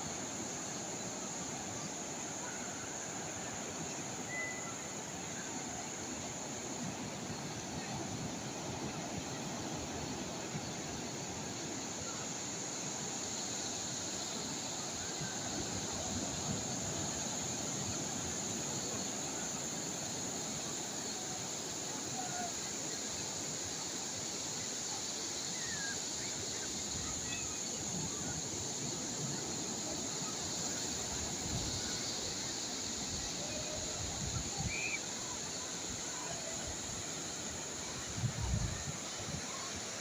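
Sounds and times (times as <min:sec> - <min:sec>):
constant high hiss: 0:00.0 - 0:40.0
wind noise: 0:37.9 - 0:40.0.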